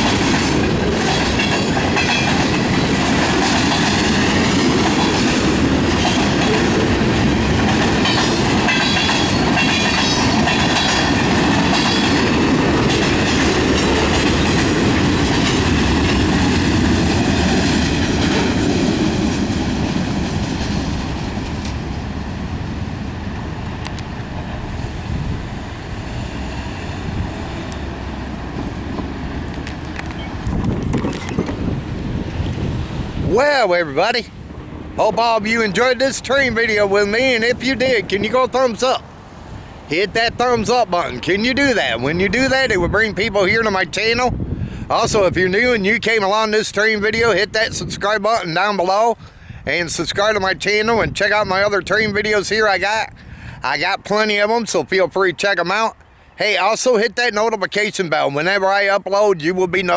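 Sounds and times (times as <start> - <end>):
steel wheels clacking over rail joints: 0.0 - 22.6, 25.8 - 39.0
freight train rolling past: 0.0 - 59.9.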